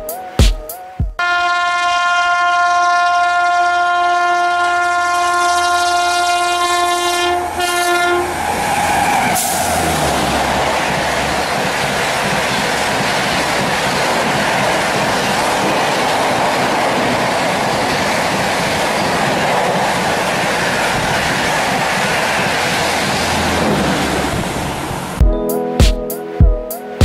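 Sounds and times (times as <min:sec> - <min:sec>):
train wheels running on rails: 0:06.8 - 0:25.2.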